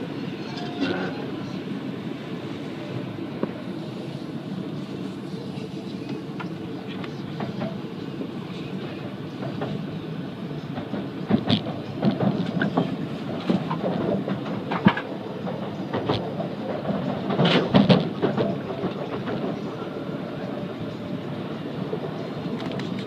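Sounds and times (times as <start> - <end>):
train cabin low rumble: 0.0 - 23.0
wheels clicking on track: 10.6 - 23.0.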